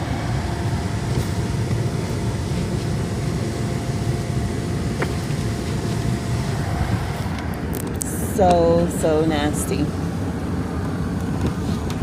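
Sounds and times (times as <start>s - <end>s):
wind buffeting microphone: 6.1s - 9.0s.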